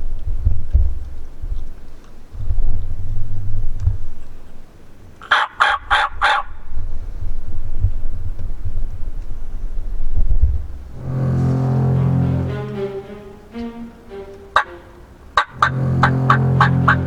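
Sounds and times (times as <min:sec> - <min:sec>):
turkey gobbling: 0:05.2 - 0:06.4, 0:14.6 - 0:17.0.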